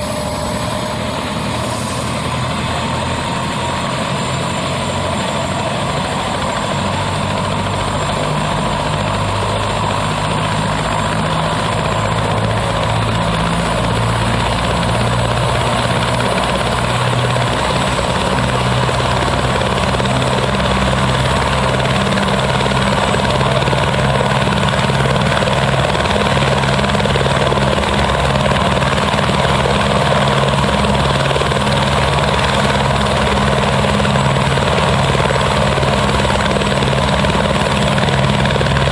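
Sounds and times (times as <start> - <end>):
helicopter rotor running: 0.0 - 38.9.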